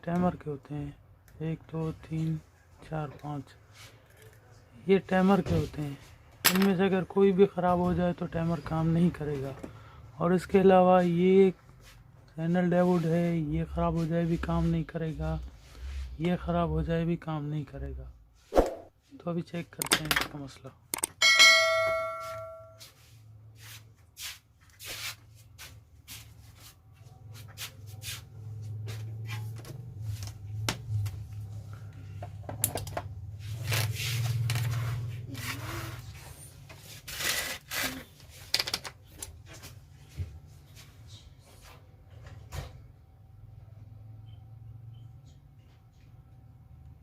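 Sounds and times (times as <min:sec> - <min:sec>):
tools clicking and tapping on circuit board: 0:19.7 - 0:21.2.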